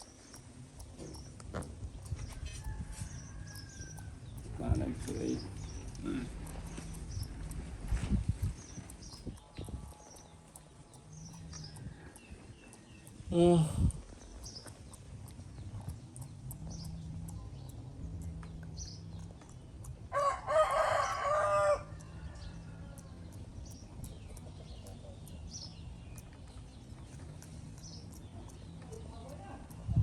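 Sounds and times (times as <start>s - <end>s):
long animal call: 5.8s - 7.2s.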